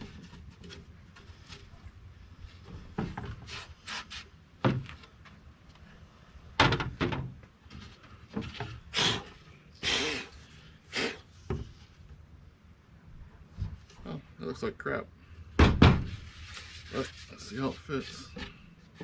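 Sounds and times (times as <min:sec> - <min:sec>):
wooden knocks and thuds: 0:02.7 - 0:03.5, 0:04.6 - 0:05.0, 0:06.6 - 0:07.5, 0:11.5 - 0:11.8, 0:15.6 - 0:16.2.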